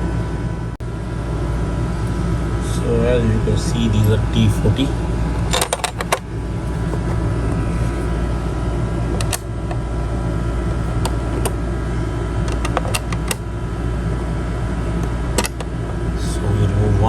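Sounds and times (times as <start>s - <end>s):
steady mechanical hum: 0.0s - 17.0s
sharp clicks and knocks: 5.4s - 7.2s, 9.2s - 9.8s, 10.9s - 11.6s, 12.4s - 13.4s, 15.4s - 15.7s.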